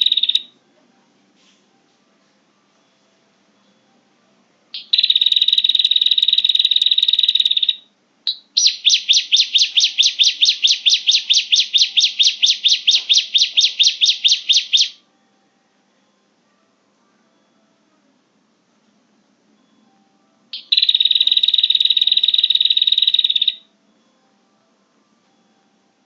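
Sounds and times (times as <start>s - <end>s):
buzzing bird trill: 0.0s - 0.5s, 4.8s - 15.0s, 20.6s - 23.7s
repeated sharp bird chirps: 0.0s - 0.5s, 4.8s - 15.0s, 20.6s - 23.6s.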